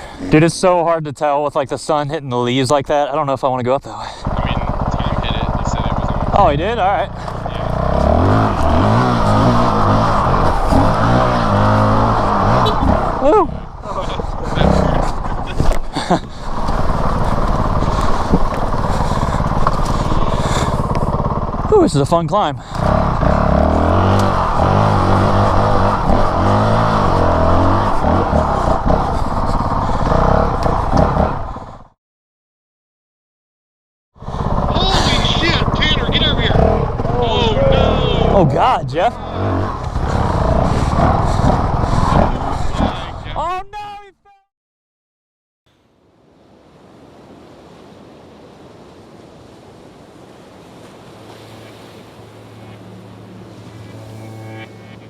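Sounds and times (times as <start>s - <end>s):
dirt bike engine revving: 0.0s - 0.8s, 4.1s - 31.8s, 34.2s - 43.2s, 51.0s - 55.0s
low steady hum: 50.8s - 55.0s
steady rushing noise: 50.8s - 55.0s.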